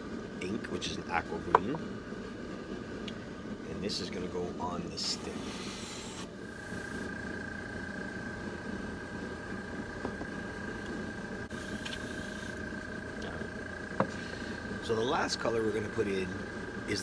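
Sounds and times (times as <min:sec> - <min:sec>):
steady low hum: 0:00.0 - 0:17.0
thin constant whine: 0:00.0 - 0:17.0
airbrush spraying hiss: 0:05.1 - 0:07.1.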